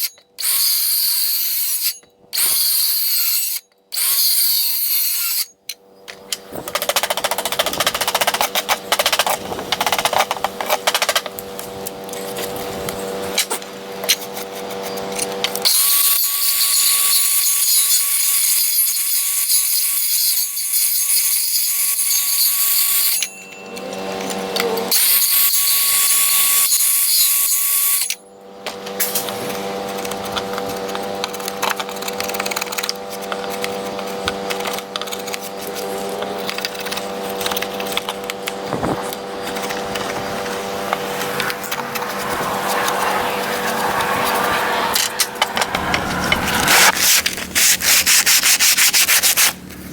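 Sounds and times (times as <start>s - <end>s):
power drill whining: 27.9s - 48.3s.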